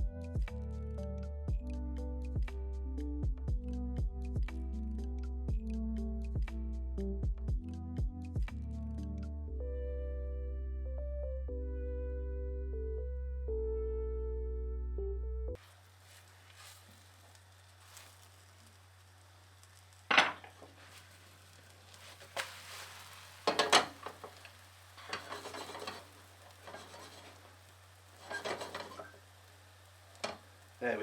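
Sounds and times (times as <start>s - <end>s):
faint sizzle: 15.6s - 31.0s
spatula scraping a frying pan: 21.9s - 29.2s.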